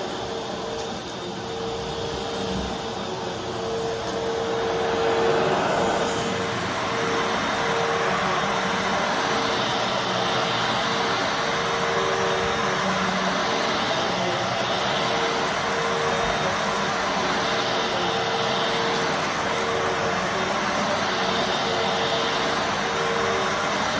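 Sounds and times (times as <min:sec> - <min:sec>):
vacuum cleaner running: 0:00.0 - 0:23.9.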